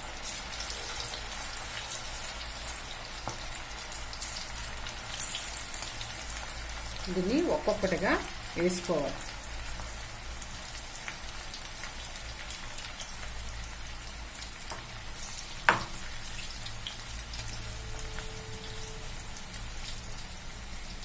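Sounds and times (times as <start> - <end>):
food deep-frying in oil: 0.0 - 21.0.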